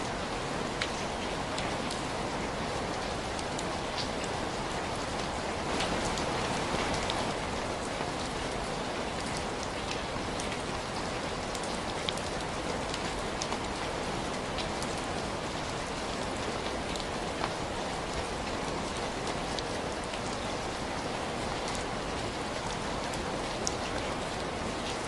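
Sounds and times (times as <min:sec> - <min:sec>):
rain hissing: 0:00.0 - 0:08.1.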